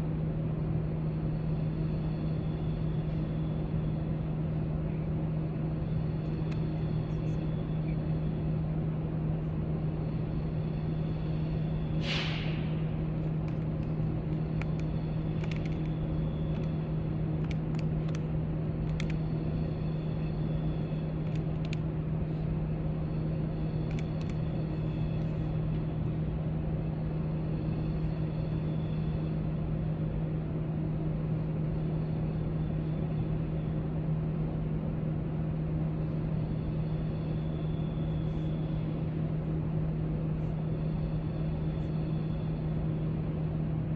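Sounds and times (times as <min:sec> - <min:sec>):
low room hum: 0:00.0 - 0:43.9
faint clicks and taps: 0:17.4 - 0:19.2.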